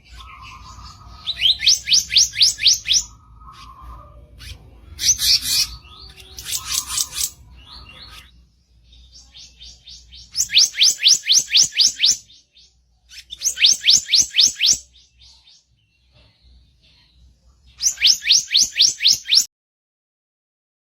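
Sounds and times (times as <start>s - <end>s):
bird harsh chattering: 0.1s - 8.3s, 10.2s - 12.3s, 13.2s - 14.8s
bird rapid whistled notes: 0.3s - 3.8s, 10.2s - 12.3s, 13.2s - 14.9s, 17.8s - 19.5s.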